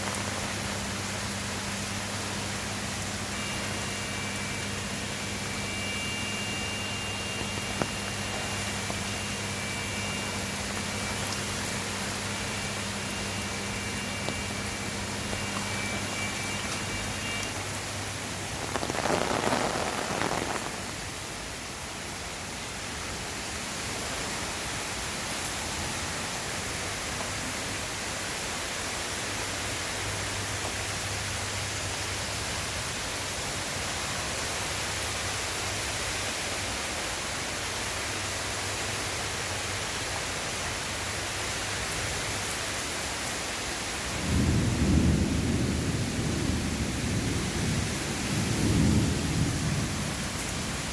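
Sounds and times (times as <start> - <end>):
heavy rain falling: 0.0 - 50.9
deep rumble of thunder: 44.2 - 50.7.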